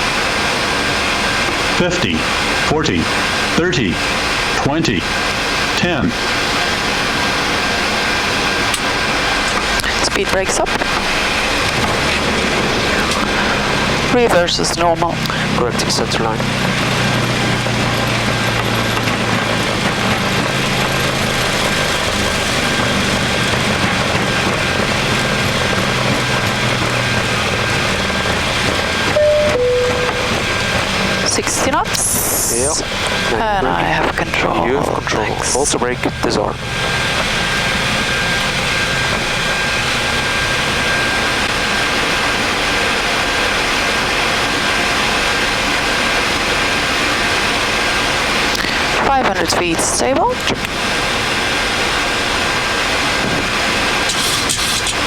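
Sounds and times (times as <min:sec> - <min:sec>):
jet engines in reverse thrust: 0:00.0 - 0:55.0
low engine hum: 0:00.0 - 0:55.0
thin steady whine: 0:23.4 - 0:55.0.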